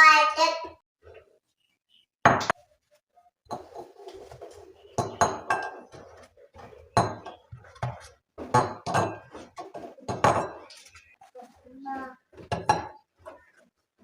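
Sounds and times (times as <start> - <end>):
dishes and cutlery clinking: 3.5 - 11.2, 12.4 - 13.6.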